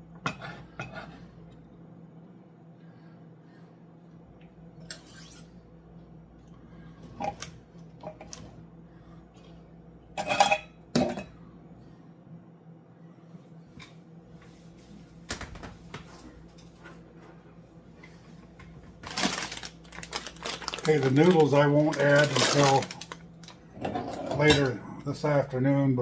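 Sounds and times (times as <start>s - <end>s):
steady low hum: 0.0s - 26.0s
cookware and utensils clinking: 10.2s - 11.4s, 23.8s - 24.8s.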